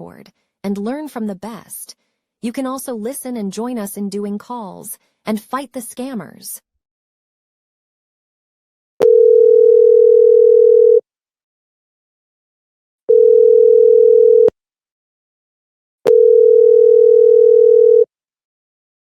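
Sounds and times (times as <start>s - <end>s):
telephone ringing tone: 9.0s - 11.0s, 13.1s - 14.6s, 16.1s - 18.1s.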